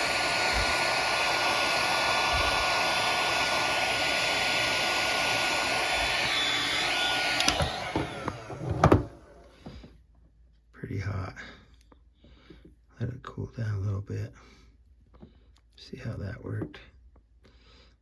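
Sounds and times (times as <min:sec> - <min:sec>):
heat gun blowing: 0:00.0 - 0:09.6
heat gun spinning down whine: 0:00.0 - 0:09.6.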